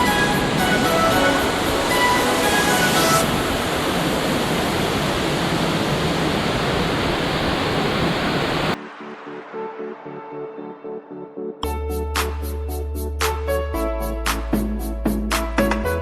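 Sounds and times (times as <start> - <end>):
quiet background music: 0.0 - 3.3
waterfall roaring: 0.0 - 8.8.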